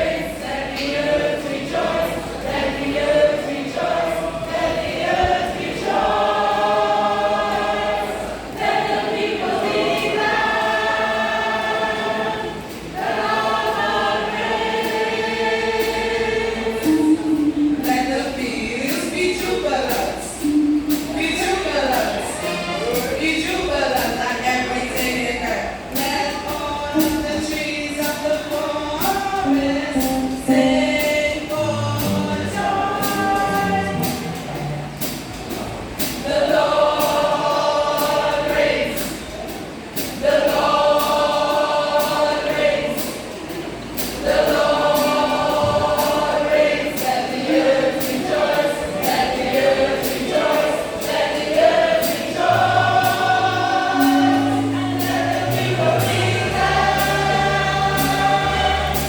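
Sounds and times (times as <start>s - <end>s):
choir singing gospel: 0.0s - 59.0s
steady beat: 29.3s - 35.7s, 52.2s - 59.0s
bass line: 29.5s - 35.4s, 52.6s - 59.0s.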